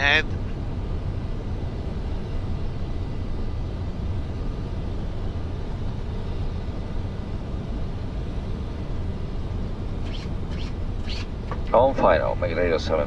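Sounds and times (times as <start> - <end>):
airflow and engine rumble: 0.0 - 13.0
faint steady whines: 0.0 - 13.0.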